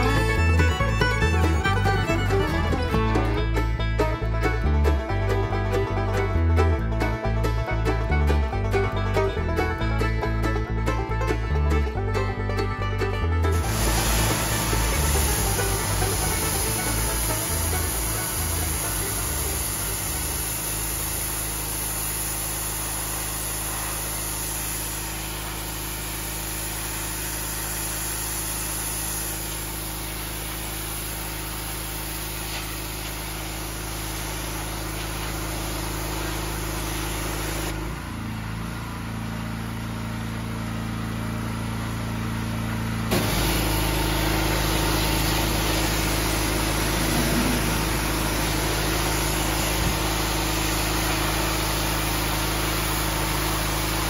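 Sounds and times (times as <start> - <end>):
pressure washer engine running: 0.0 - 54.0
hiss of water spray: 13.6 - 37.8, 43.1 - 54.0.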